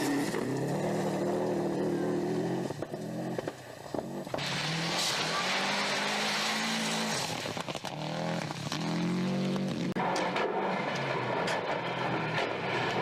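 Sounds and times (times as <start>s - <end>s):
rally car engine revving: 0.0s - 13.0s
exhaust crackles and pops: 2.6s - 13.0s.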